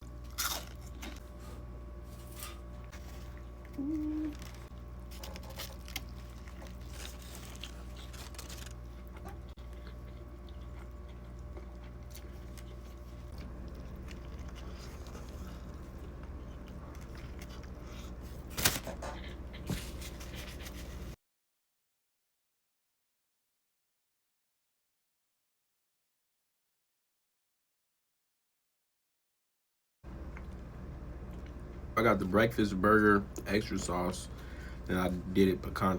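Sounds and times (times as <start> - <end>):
quiet chewing: 0.0 - 21.2, 30.2 - 31.8
steady low hum: 0.0 - 21.2, 30.1 - 35.9
person humming a note: 3.8 - 4.5
wrapper rustling: 4.1 - 9.1, 18.4 - 19.1.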